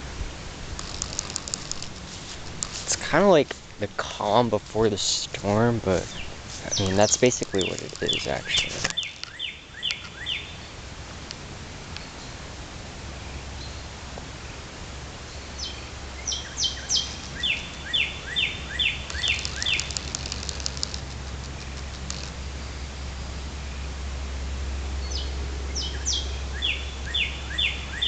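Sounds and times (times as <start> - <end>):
steady low rumble: 0.0 - 9.2
songbirds chirping: 0.8 - 10.8, 15.3 - 23.5, 25.0 - 28.0
fast high bird trill: 6.1 - 10.4, 16.3 - 22.4.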